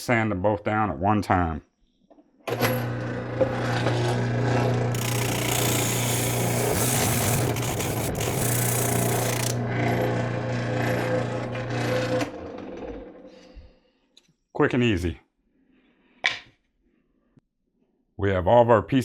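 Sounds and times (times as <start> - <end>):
spindle sander motor hum: 2.8 - 12.9
sanding drum rasping wood: 4.9 - 9.6.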